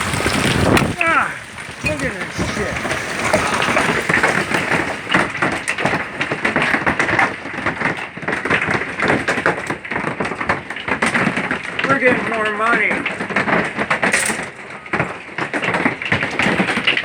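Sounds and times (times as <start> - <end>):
hail pounding: 0.0 - 17.0
rain: 0.0 - 17.0.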